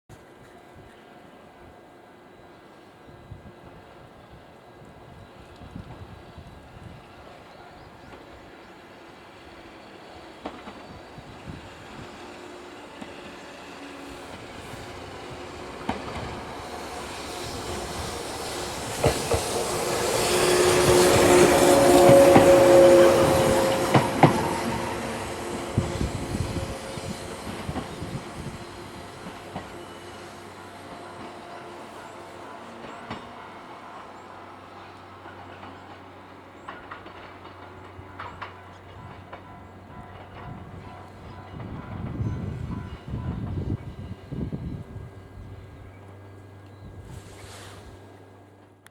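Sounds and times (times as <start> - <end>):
electric railcar passing: 0.1 - 48.9
wheels clacking over rail joints: 10.2 - 29.8, 30.9 - 44.0.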